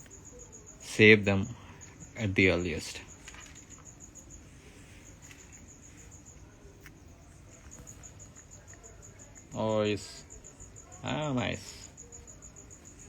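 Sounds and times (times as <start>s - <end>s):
cricket chirping: 0.0s - 13.0s
faint clicks: 3.1s - 9.6s.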